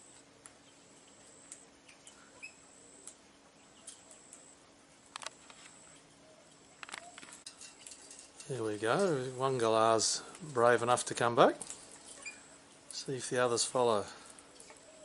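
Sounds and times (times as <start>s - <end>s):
faint bird chirp: 0.0s - 4.5s, 5.7s - 8.0s, 12.1s - 12.6s
thin high steady whine: 0.0s - 15.0s.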